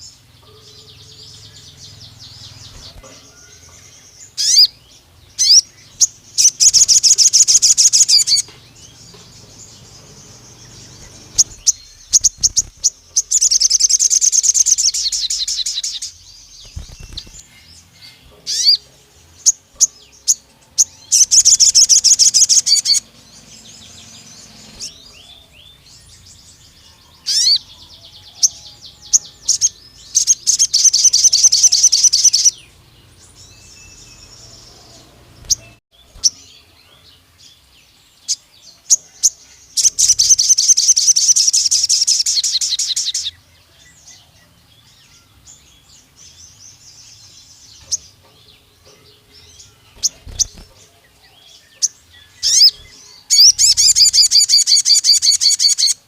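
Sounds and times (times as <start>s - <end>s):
bird high rapid trills: 9.8s - 18.8s, 19.8s - 25.8s, 49.9s - 50.8s, 52.4s - 56.0s.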